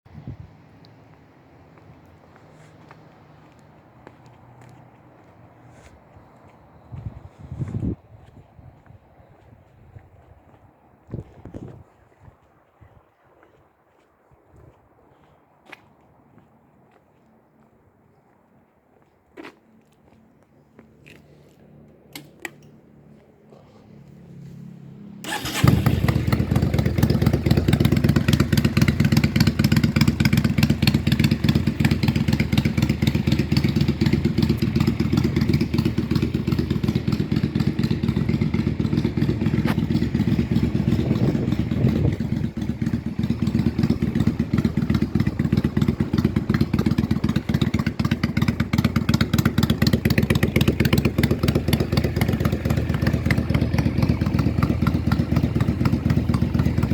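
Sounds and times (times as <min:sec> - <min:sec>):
starter motor cranking: 0:25.2 - 0:26.2
motorcycle engine idling: 0:25.2 - 0:56.9.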